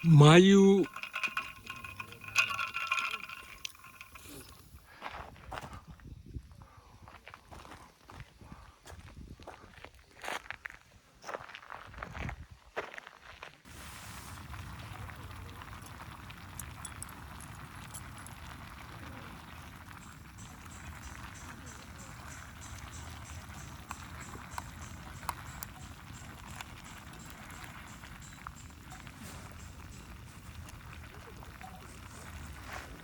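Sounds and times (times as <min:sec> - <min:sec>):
high evenly spaced ticking: 0:00.0 - 0:04.5
campfire crackling and popping: 0:00.0 - 0:04.8, 0:13.7 - 0:33.0.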